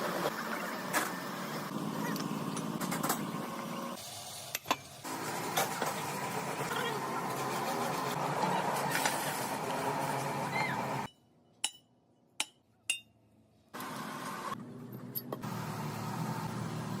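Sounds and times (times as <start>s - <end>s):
workshop machinery noise: 0.0s - 11.1s.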